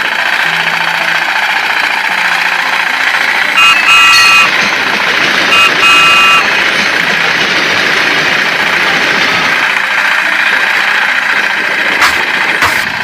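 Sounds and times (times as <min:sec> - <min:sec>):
hissy engine running: 0:00.0 - 0:13.0
horn honking: 0:03.4 - 0:06.9.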